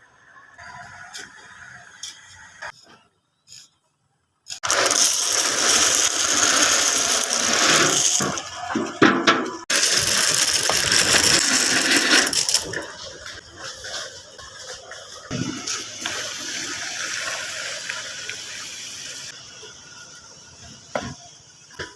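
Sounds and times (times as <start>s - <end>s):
concrete mixer clattering: 4.6s - 13.4s.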